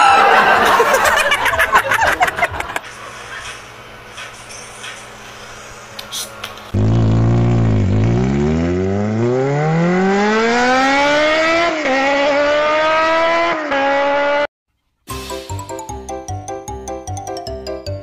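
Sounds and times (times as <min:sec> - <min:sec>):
car engine revving: 0:06.7 - 0:14.4
music: 0:15.1 - 0:18.0.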